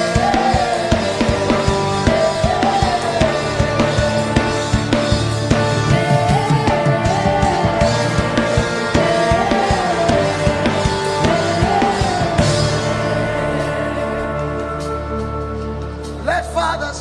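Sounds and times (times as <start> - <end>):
drum kit beat: 0.0 - 16.2
sustained keyboard chords: 0.0 - 17.0.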